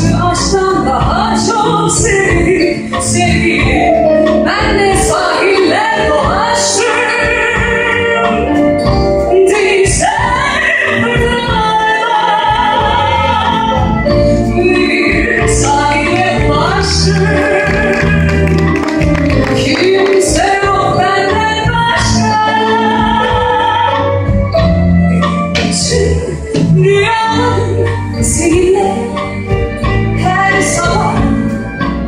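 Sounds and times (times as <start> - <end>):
person singing with vibrato: 0.0 - 31.4
live band playing: 0.0 - 32.0
steady bass line: 12.5 - 32.0.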